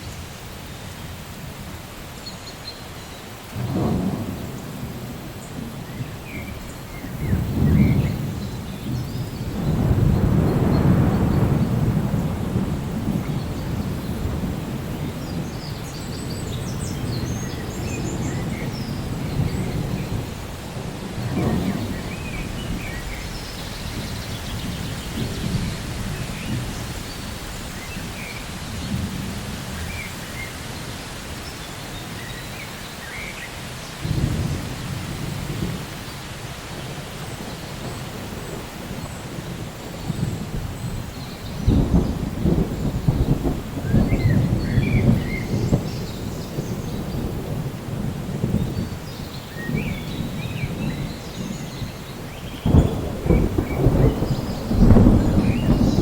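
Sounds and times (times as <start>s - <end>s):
steady rain: 0.0s - 56.0s
sharp thunderclap: 3.6s - 30.0s, 34.0s - 35.9s, 36.8s - 56.0s
rolling thunder: 3.6s - 30.6s, 34.0s - 56.0s.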